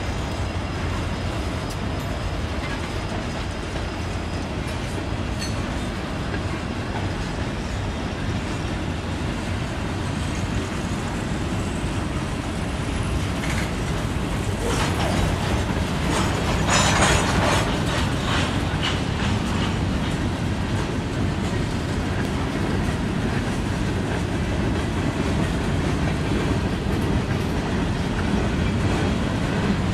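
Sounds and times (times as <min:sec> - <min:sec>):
freight train rumbling past: 0:00.0 - 0:29.9
wheels clacking over rails: 0:12.9 - 0:29.9.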